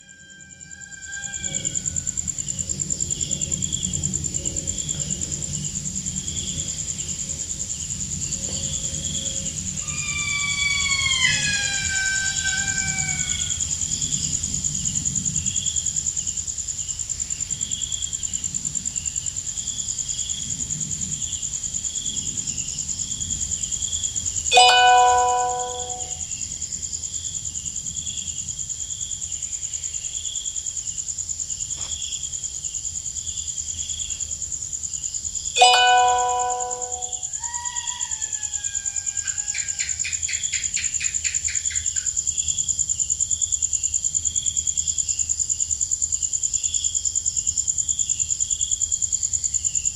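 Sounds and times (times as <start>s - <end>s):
insects buzzing and chirping: 0.0s - 49.9s.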